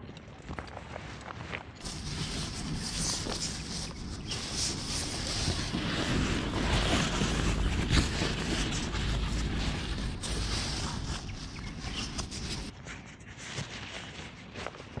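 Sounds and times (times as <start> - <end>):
rain hiss: 1.8 - 12.7
wind buffeting microphone: 1.8 - 12.8.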